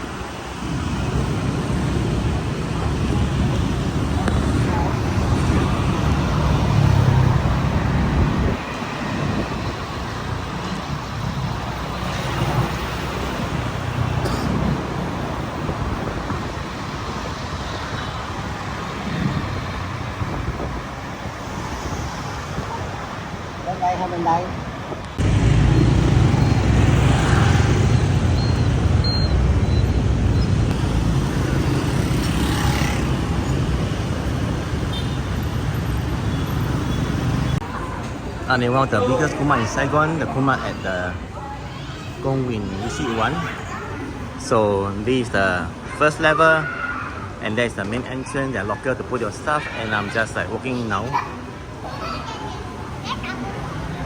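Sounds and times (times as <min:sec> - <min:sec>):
street traffic of motorbikes: 0:00.0 - 0:54.0.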